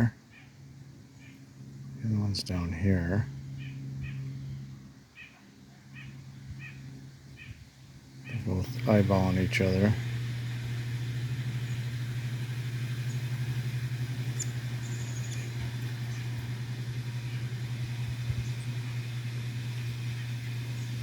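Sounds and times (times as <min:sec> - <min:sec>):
motor humming with flutter: 0:00.0 - 0:21.0
faint bird chirps: 0:03.4 - 0:07.6, 0:14.3 - 0:16.5.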